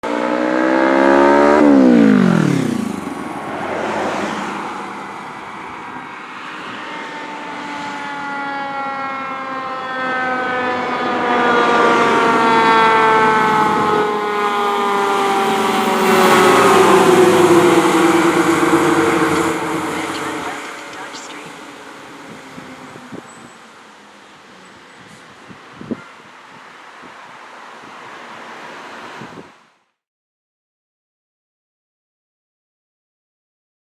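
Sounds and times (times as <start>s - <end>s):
fire engine siren wailing: 4.1s - 23.6s.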